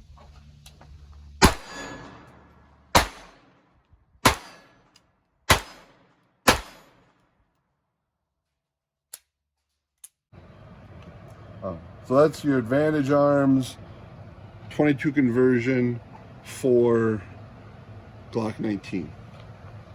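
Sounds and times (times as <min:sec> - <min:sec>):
pistol shots: 0:01.4 - 0:03.6, 0:04.2 - 0:04.9, 0:05.5 - 0:07.2.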